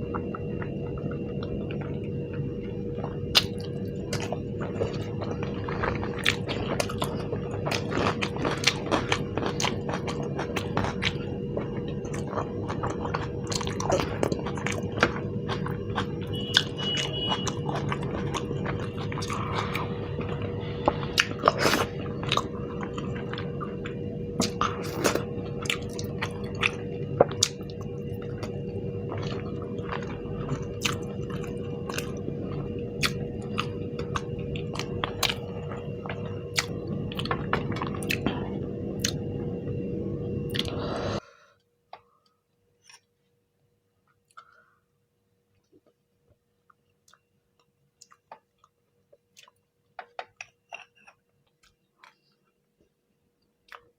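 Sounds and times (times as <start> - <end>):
faint steady hum: 0.0 - 53.9
person chewing with wet smacks: 3.0 - 39.3, 46.6 - 52.6.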